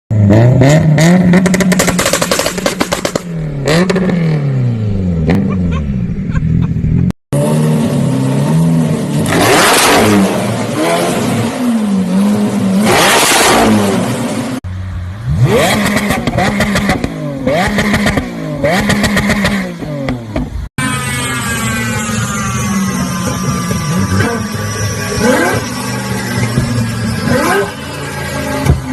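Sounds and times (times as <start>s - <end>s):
car engines revving: 0.1s - 28.9s
exhaust crackles and pops: 1.4s - 3.3s.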